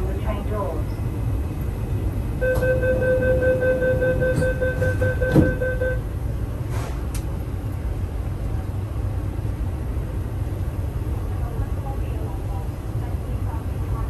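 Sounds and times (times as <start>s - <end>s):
low hum of stationary train: 0.0s - 14.0s
electronic door warning beeps: 2.4s - 6.0s
train doors knocking shut: 4.1s - 6.0s.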